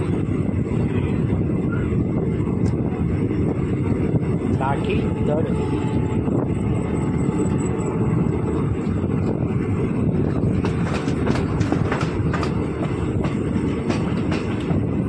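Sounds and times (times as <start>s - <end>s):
train wheels rumbling on rail: 0.0s - 15.0s
wheels clicking over rail joints: 10.2s - 14.9s.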